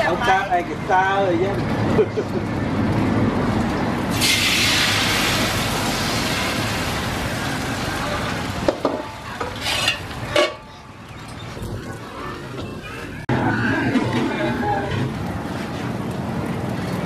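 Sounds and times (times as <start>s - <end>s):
mixture sizzling in wok: 4.1s - 8.8s
metal clanks of wok and lid: 8.8s - 10.6s.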